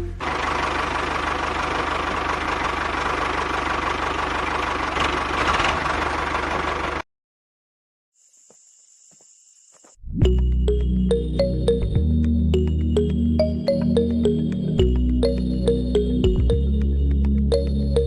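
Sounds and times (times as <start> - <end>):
music: 10.1 - 18.0.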